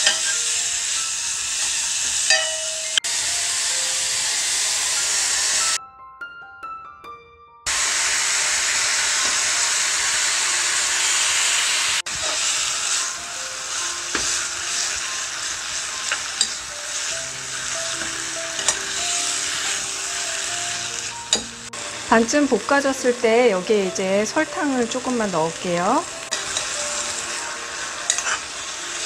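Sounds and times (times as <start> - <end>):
soft plucked background music: 0.0 - 5.7, 12.1 - 29.0
meat sizzling in a pot: 0.0 - 5.8, 7.7 - 29.0.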